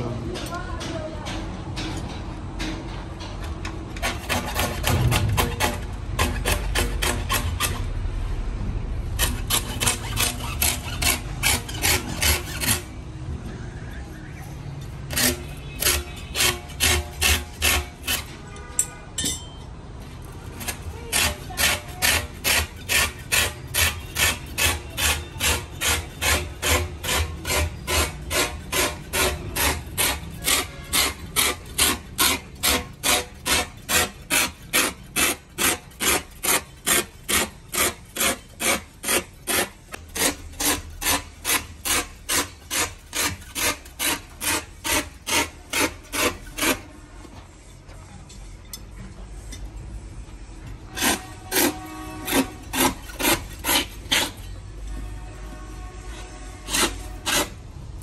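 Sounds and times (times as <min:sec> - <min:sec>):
hand rasp on tyre rubber: 0:04.0 - 0:08.0, 0:09.1 - 0:13.0, 0:15.1 - 0:18.6, 0:20.5 - 0:46.9, 0:50.8 - 0:58.0.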